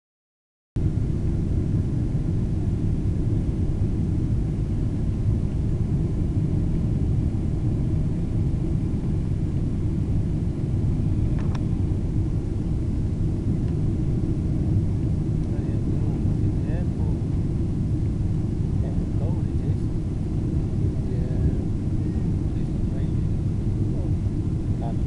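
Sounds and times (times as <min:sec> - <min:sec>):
airliner cabin rumble: 0:00.8 - 0:25.0
faint click: 0:11.4 - 0:11.7.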